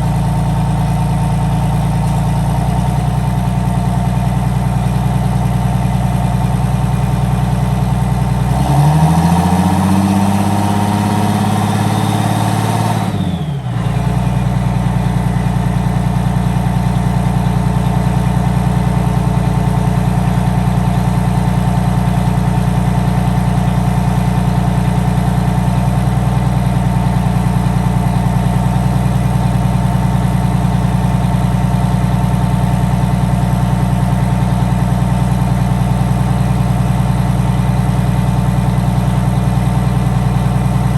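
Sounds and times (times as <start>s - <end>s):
diesel engine revving and idling: 0.0s - 40.9s.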